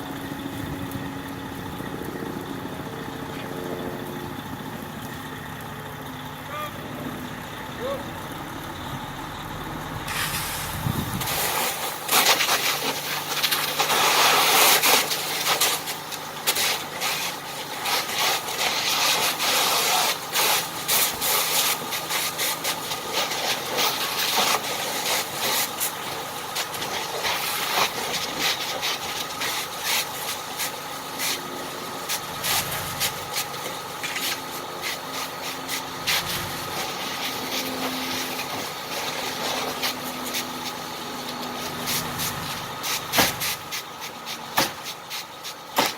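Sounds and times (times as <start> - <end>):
fire crackling and popping: 0.0 - 6.4, 10.0 - 45.9
fire engine running: 0.0 - 45.9
fire hose spraying: 10.0 - 45.9.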